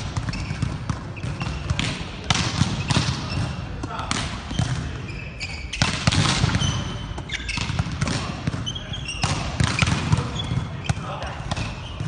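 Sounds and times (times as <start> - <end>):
balls struck and bouncing: 0.0 - 12.0
shoe squeaks: 0.2 - 1.7, 4.5 - 7.8, 8.5 - 12.0.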